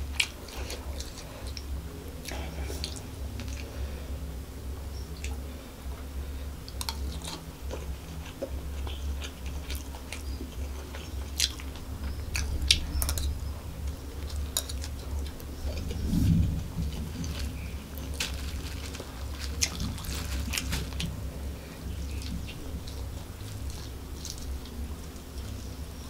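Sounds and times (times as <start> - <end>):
steady low hum: 0.0 - 26.0
chewing food: 6.7 - 26.0.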